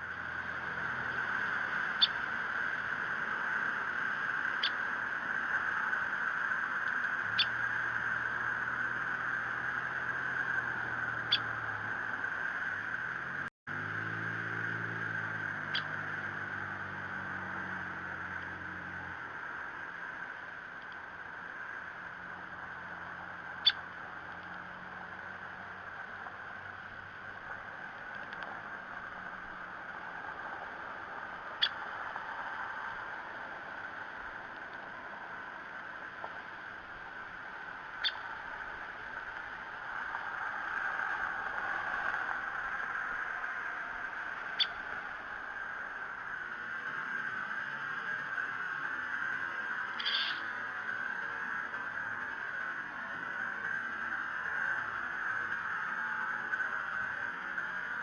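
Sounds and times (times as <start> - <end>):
steady hiss: 0.0 - 58.0
woodpecker sharp calls: 2.0 - 2.2, 38.0 - 38.2, 44.5 - 44.8, 50.0 - 50.4.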